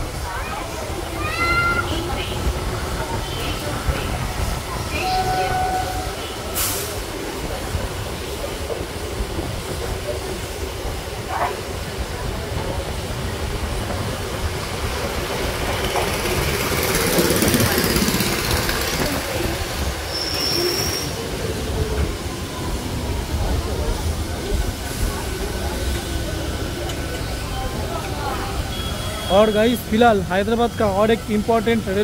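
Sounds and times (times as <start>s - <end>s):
train wheels rumbling on track: 0.0s - 32.0s
high squeal: 20.1s - 21.2s.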